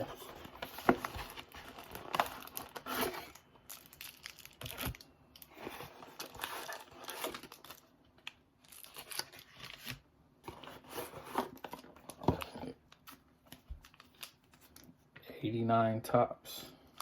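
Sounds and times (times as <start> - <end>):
card pack wrappers tearing: 0.0 - 10.0.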